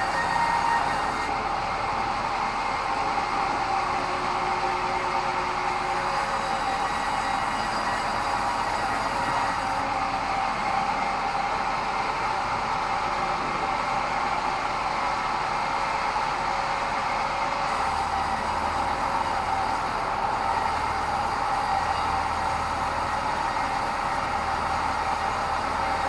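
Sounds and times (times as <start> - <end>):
band saw whine: 0.0 - 1.5, 4.1 - 9.9, 17.7 - 26.0.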